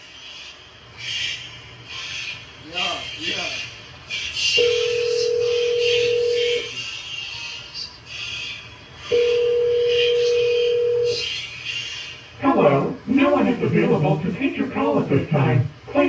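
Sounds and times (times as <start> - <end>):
steady background hiss: 0.0 - 16.0
telephone ringback tone: 4.6 - 6.7, 9.1 - 11.2.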